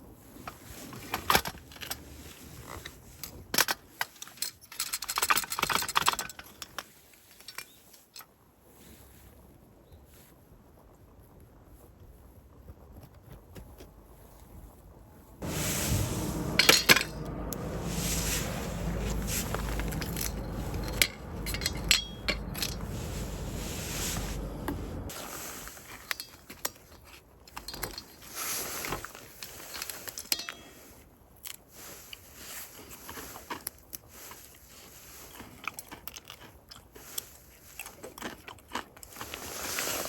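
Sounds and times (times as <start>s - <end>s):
low steady rumble: 15.4s - 25.1s
camp cookware clinking and scraping: 15.4s - 25.2s, 29.1s - 31.0s.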